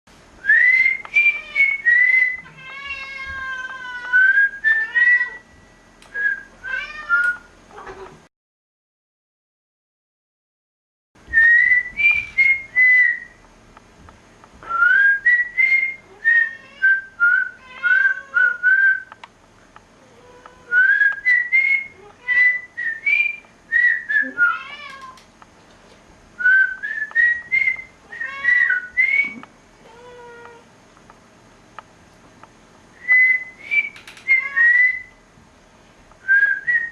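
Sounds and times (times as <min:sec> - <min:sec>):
person whistling a tune: 0:11.3 - 0:13.4, 0:20.7 - 0:24.5, 0:26.4 - 0:29.4, 0:33.0 - 0:35.1, 0:36.2 - 0:36.9.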